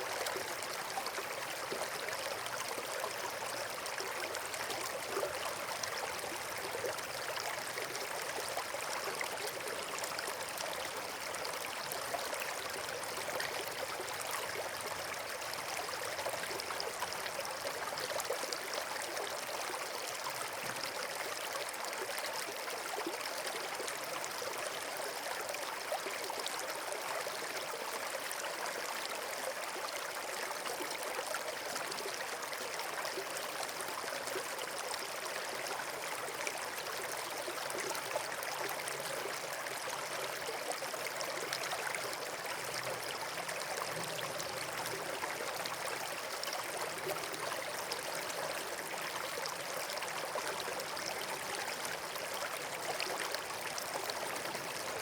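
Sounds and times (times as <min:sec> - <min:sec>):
stream water rushing and trickling: 0:00.0 - 0:55.0.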